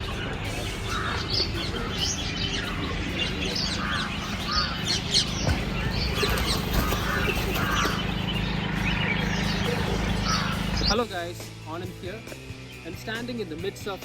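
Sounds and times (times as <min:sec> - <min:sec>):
birds chirping and calling: 0:00.0 - 0:14.0
steady low hum: 0:00.9 - 0:11.0.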